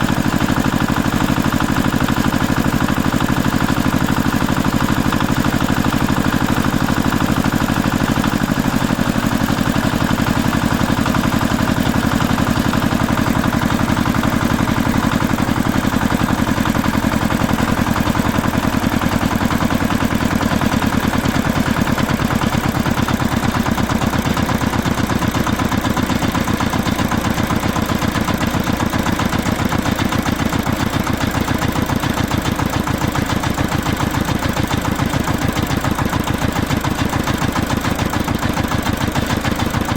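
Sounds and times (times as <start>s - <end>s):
vehicle engine idling: 0.0s - 39.9s.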